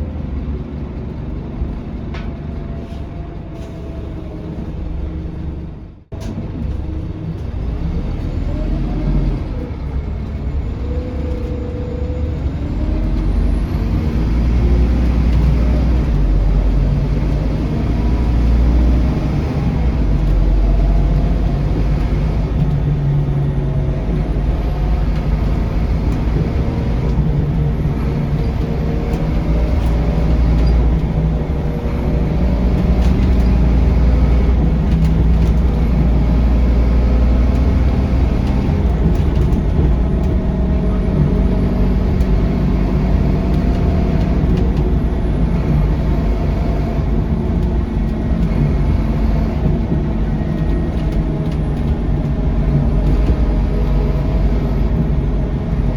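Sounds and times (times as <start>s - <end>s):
bus engine drone: 0.0s - 55.9s.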